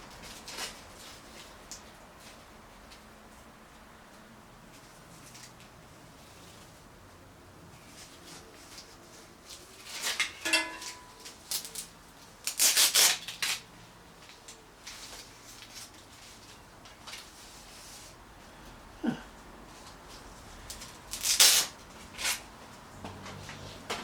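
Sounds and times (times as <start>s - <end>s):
metallic clink: 10.2s - 11.3s.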